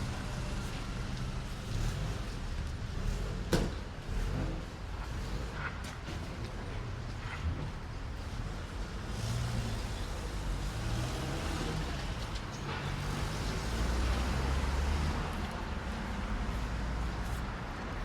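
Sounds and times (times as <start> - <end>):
vehicle engine rumble: 0.0 - 18.0
city noise hiss: 6.9 - 18.0.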